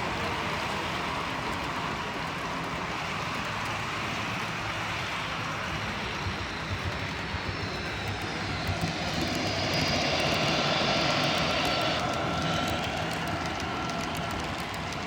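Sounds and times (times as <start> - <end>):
wheels humming on rails: 0.0 - 15.0
model train motor whine: 5.0 - 15.0.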